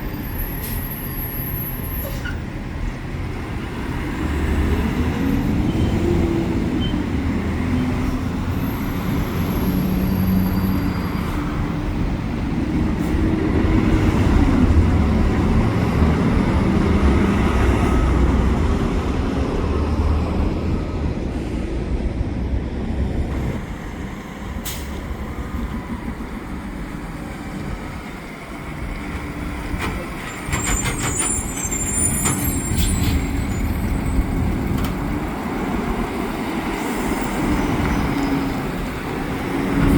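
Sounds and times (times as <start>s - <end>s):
air brakes hissing and squealing: 0.0s - 2.6s, 7.8s - 11.8s, 12.9s - 13.4s, 24.5s - 25.4s, 29.9s - 34.9s, 36.6s - 38.9s.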